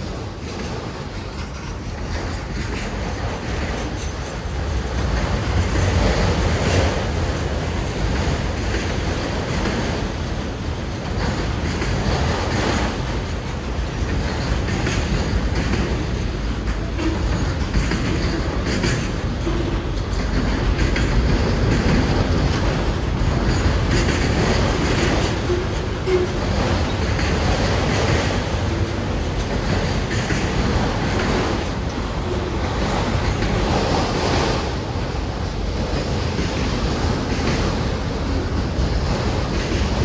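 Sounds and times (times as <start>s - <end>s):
steel wheels clattering: 0.0s - 40.0s.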